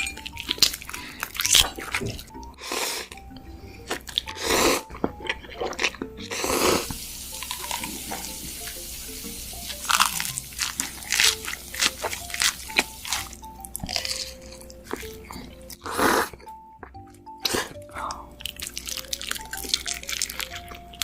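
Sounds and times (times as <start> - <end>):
light background music: 0.0 - 21.0
crunchy bites and chewing: 0.4 - 2.4, 9.7 - 21.0.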